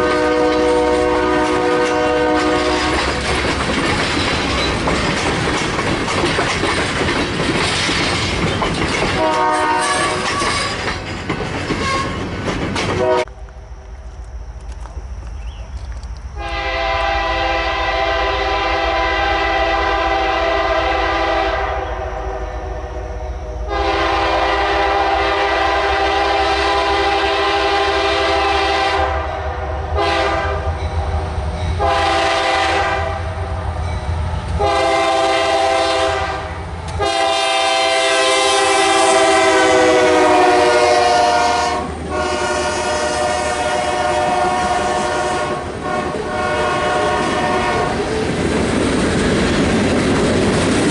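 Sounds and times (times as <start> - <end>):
locomotive air horn blasts: 0.0 - 3.0, 9.2 - 10.8, 11.8 - 12.2, 13.0 - 13.3, 16.4 - 30.8, 31.8 - 33.4, 34.6 - 48.0.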